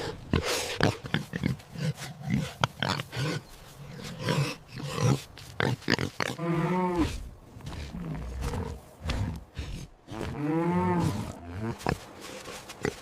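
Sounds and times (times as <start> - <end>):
pigs grunting: 0.0 - 13.0.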